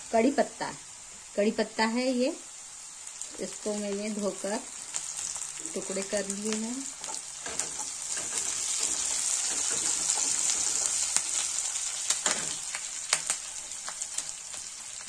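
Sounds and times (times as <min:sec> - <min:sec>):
onions sizzling in hot oil: 0:00.0 - 0:15.0
crackles and pops of leaves in oil: 0:03.0 - 0:15.0.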